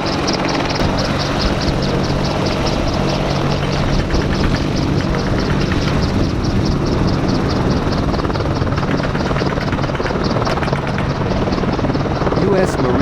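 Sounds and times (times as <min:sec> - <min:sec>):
engine hum: 0:00.0 - 0:13.0
helicopter rotor beating: 0:00.0 - 0:13.0.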